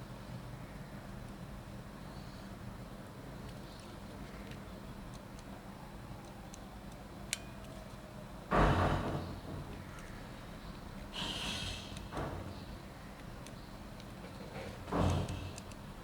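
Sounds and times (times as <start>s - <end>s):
thump and rustle: 8.5s - 9.8s, 12.1s - 12.6s, 14.2s - 15.5s
short hiss: 11.1s - 12.1s.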